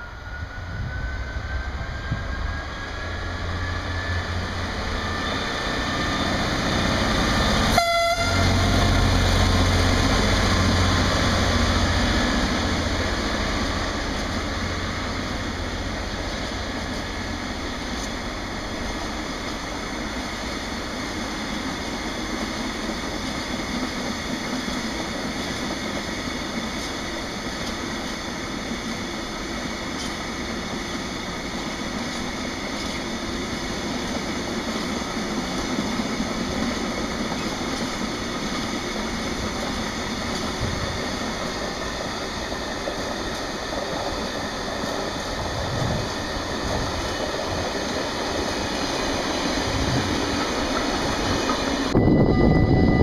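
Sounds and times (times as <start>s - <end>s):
freight train rolling past: 0.0s - 53.0s
steel wheels clattering on rails: 34.0s - 52.0s.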